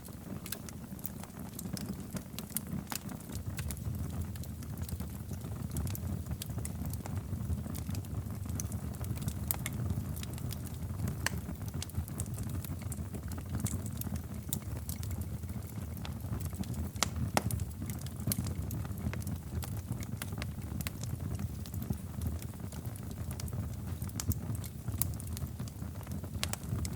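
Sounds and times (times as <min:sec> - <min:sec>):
low rumble of fire: 0:00.0 - 0:26.9
wood fire crackling: 0:00.0 - 0:26.9.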